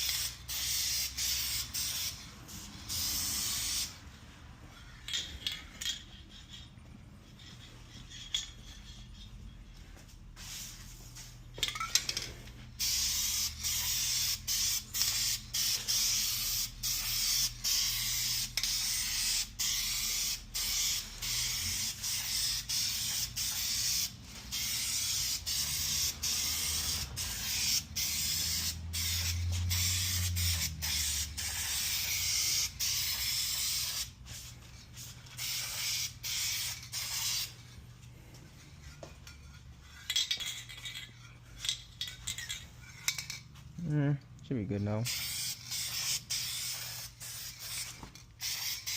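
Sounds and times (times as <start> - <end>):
aerosol spray can hissing: 0.0 - 4.0, 12.8 - 37.5, 45.1 - 48.9.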